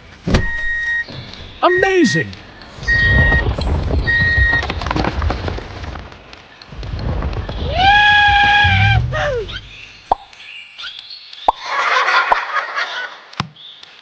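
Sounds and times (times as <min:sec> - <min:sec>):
low engine rumble: 0:06.8 - 0:09.9.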